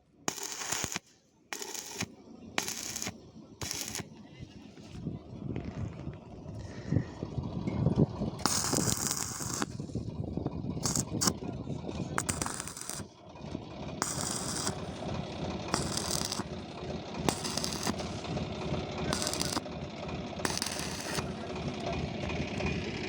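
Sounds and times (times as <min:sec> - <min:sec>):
machinery rumble: 0:00.0 - 0:23.0
arc welding crackling: 0:00.3 - 0:04.1, 0:08.4 - 0:09.8, 0:10.8 - 0:11.3, 0:12.2 - 0:13.1, 0:14.0 - 0:15.0, 0:15.7 - 0:16.6, 0:17.3 - 0:18.3, 0:19.1 - 0:19.6, 0:20.4 - 0:21.3.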